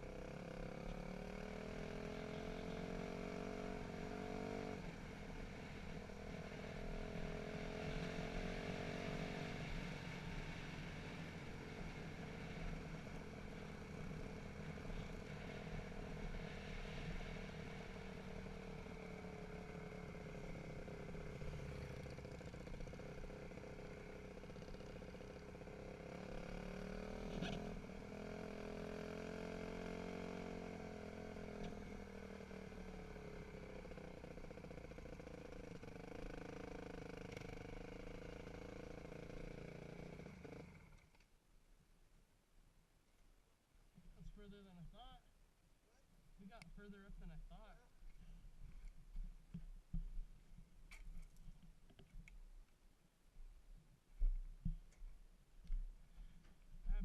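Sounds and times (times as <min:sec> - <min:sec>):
dirt bike engine revving: 0:00.1 - 0:41.0.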